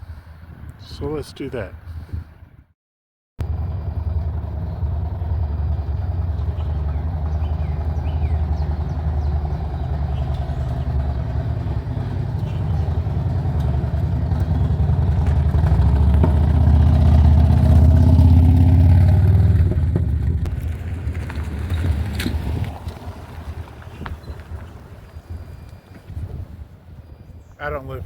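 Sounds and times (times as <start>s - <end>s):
motorcycle engine running: 3.4s - 25.6s.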